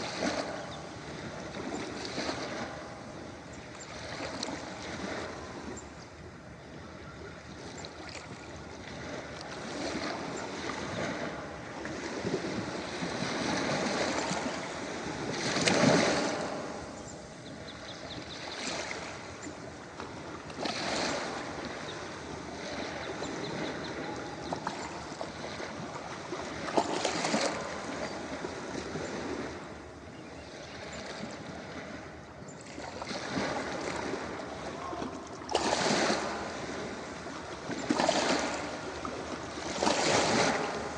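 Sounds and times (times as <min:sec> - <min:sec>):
ocean waves breaking on beach: 0:00.0 - 0:40.9.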